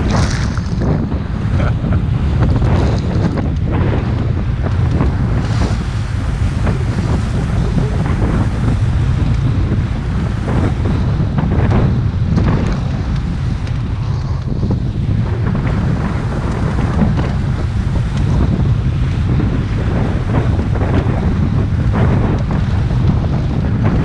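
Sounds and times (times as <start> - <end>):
motorboat motor drone: 0.0 - 24.0
water splashing along hull: 0.0 - 24.0
wind buffeting microphone: 0.0 - 24.0.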